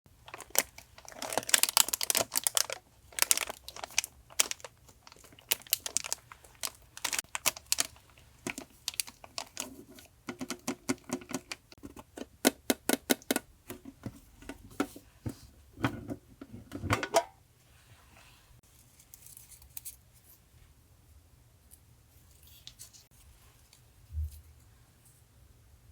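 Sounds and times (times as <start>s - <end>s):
paper and packaging rustling: 0.2s - 11.8s.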